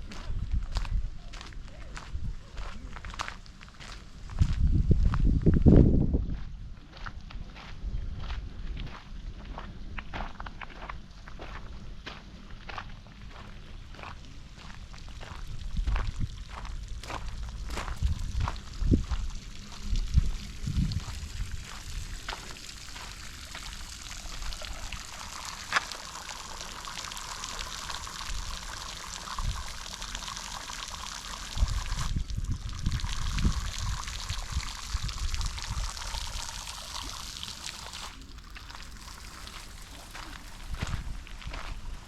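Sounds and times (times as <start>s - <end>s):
footsteps on a path: 0.0s - 25.9s, 37.6s - 42.0s
water trickling: 14.0s - 42.0s.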